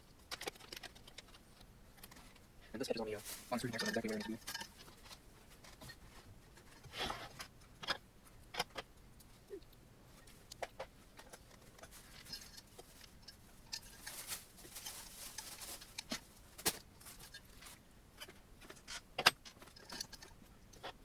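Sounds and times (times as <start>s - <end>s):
rustling scrapes: 0.5s - 7.5s, 10.1s - 19.0s.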